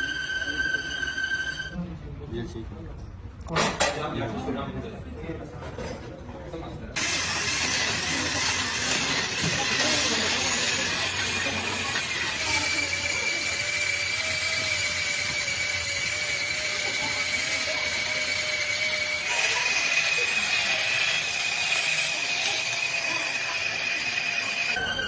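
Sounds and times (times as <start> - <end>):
workshop machine whining: 0.0 - 1.8, 7.0 - 25.0.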